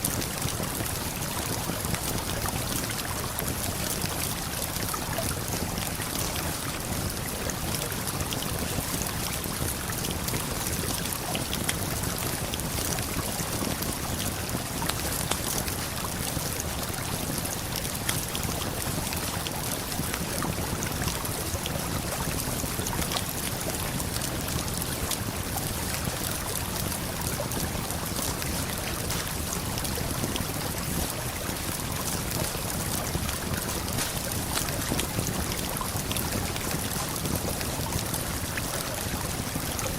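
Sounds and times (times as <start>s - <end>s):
campfire crackling: 23.6s - 38.6s
waterfall and river rushing: 33.9s - 35.1s.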